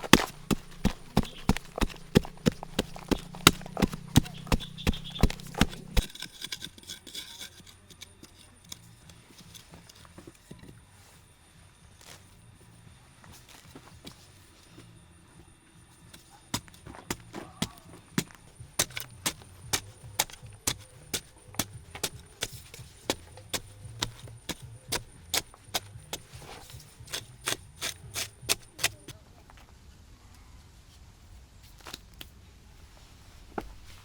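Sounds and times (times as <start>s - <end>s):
tool knocking on wood: 0.0s - 6.1s.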